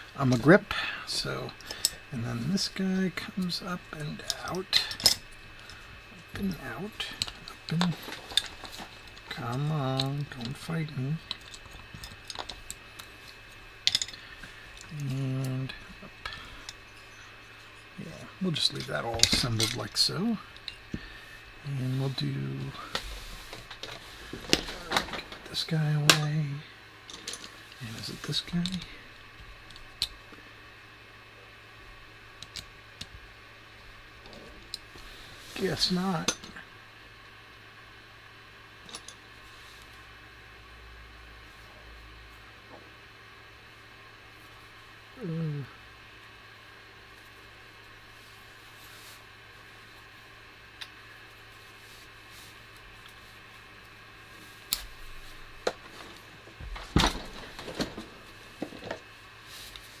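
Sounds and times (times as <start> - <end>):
low steady hum: 0.0 - 60.0
small parts and tools clicking: 7.0 - 10.6, 11.2 - 15.6, 19.1 - 19.9, 27.1 - 27.8, 38.8 - 39.2.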